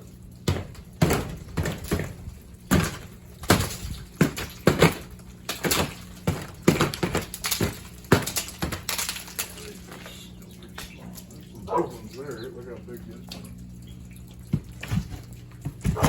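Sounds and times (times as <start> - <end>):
ice crunching and cracking: 1.2 - 10.8.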